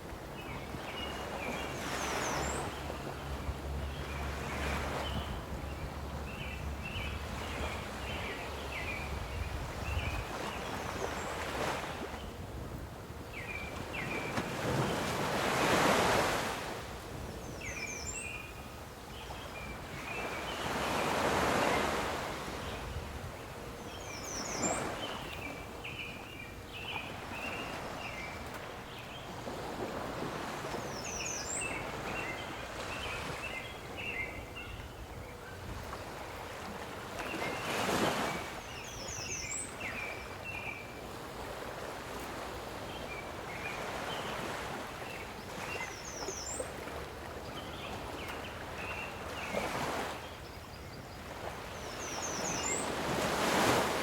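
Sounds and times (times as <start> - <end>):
waves washing in: 0.0 - 34.6, 35.6 - 50.5, 51.2 - 54.0
songbird chirping: 22.7 - 29.8, 30.4 - 41.2, 42.4 - 53.8.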